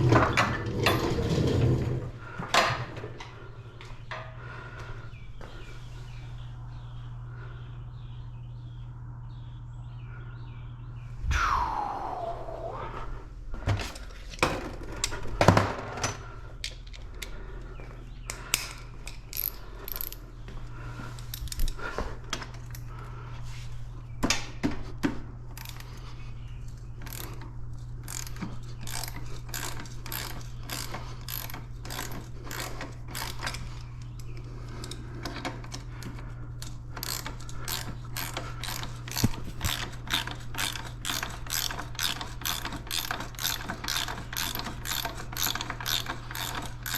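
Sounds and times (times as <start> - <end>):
low hum: 0.0 - 15.4
ratchet wrench clicking: 18.5 - 20.2, 27.0 - 27.4, 28.1 - 33.6, 36.6 - 46.9.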